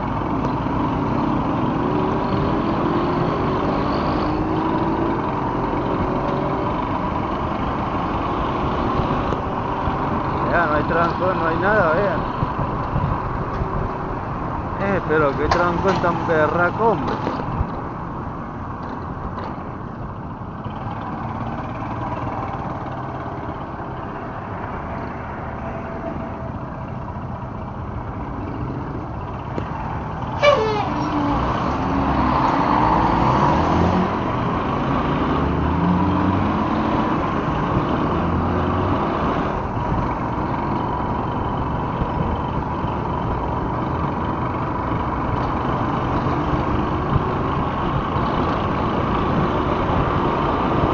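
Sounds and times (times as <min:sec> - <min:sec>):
traffic: 0:00.0 - 0:50.9.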